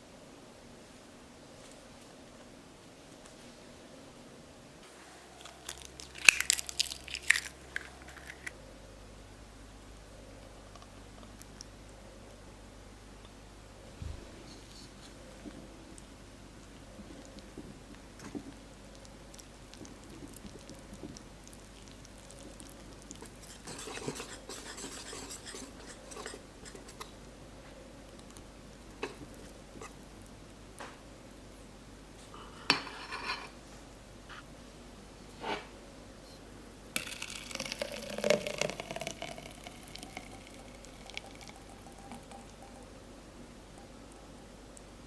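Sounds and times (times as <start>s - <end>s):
utensils stirring in a bowl: 23.2s - 27.0s.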